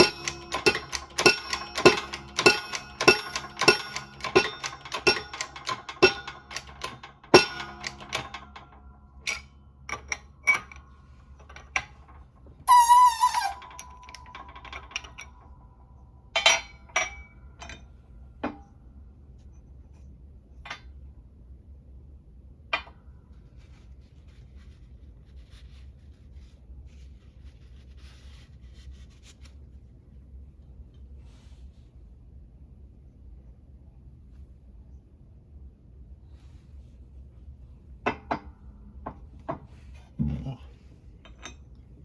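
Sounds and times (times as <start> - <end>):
hammer on ringing steel: 0.0 - 8.4
metal clang: 0.0 - 15.5
metal tools clinking: 0.0 - 15.5.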